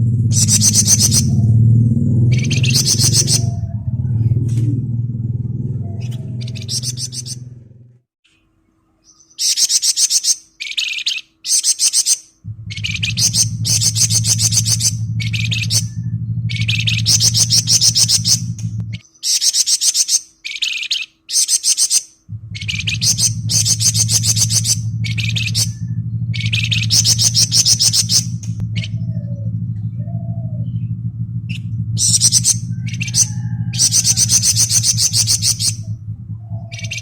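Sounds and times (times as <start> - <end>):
low steady hum: 0.0 - 11.6, 12.2 - 19.2, 22.1 - 37.0
bird singing fast rattling trills: 0.1 - 4.2, 5.6 - 7.6, 8.5 - 37.0.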